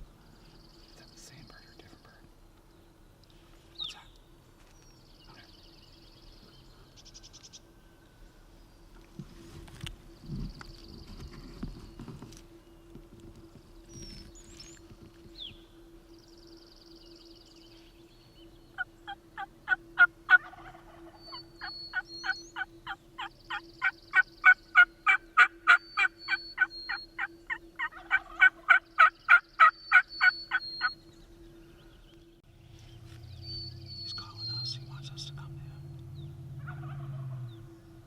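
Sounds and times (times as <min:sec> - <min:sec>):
faint songbird trills: 0:13.8 - 0:37.9
turkey yelps: 0:18.8 - 0:30.9, 0:36.6 - 0:37.4.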